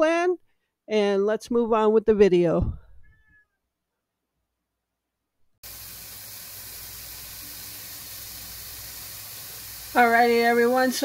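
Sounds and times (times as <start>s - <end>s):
peppers sizzling in a pan: 5.6s - 11.0s.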